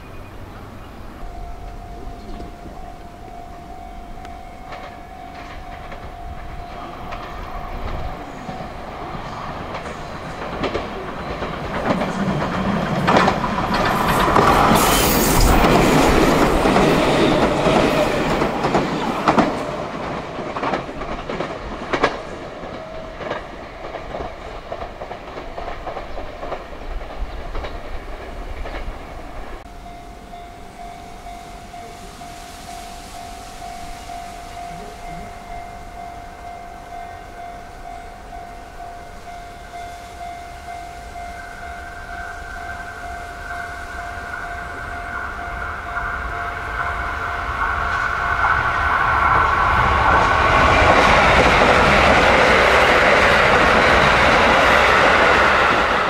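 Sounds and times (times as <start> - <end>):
steady alarm tone: 1.1 - 20.7
train wheels clattering over joints: 1.2 - 29.7, 42.6 - 56.0.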